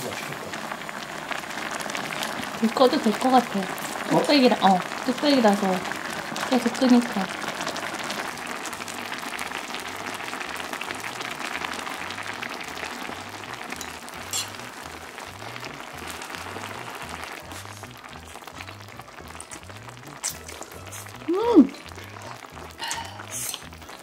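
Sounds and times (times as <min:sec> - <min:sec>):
soup bubbling in a pot: 0:00.0 - 0:24.0
soft background music: 0:11.0 - 0:24.0.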